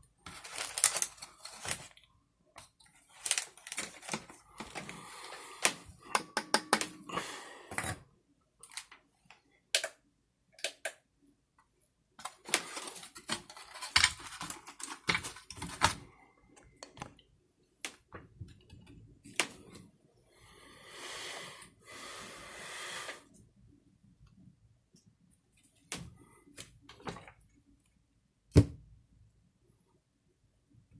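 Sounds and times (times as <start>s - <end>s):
sharp clicks and taps: 6.1s - 7.0s.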